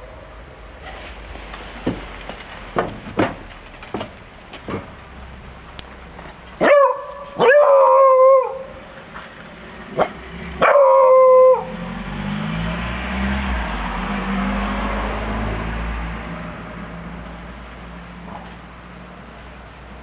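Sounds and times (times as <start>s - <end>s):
dog barking and howling: 6.6s - 8.8s, 10.0s - 11.8s.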